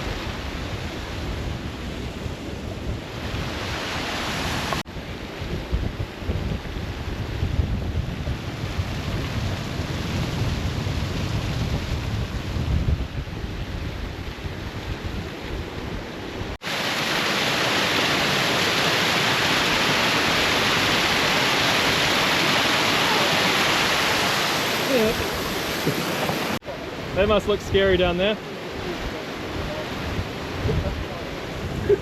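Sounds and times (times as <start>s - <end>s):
wind buffeting microphone: 0.0s - 16.6s, 28.8s - 32.0s
rushing water: 0.0s - 32.0s
waterfall rushing: 3.2s - 4.8s, 16.6s - 32.0s.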